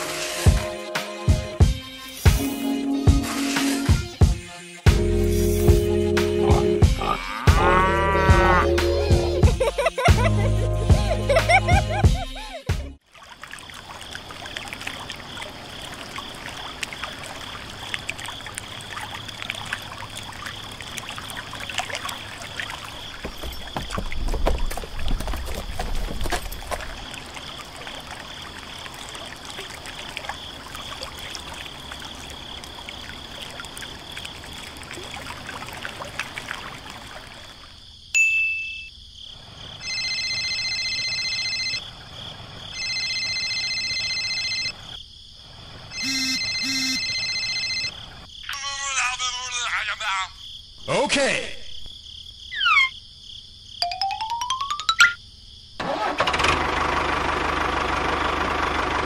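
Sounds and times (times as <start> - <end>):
water trickling and splashing: 6.5 - 38.1
telephone ring tone: 39.8 - 41.8, 42.8 - 44.8, 46.0 - 48.0.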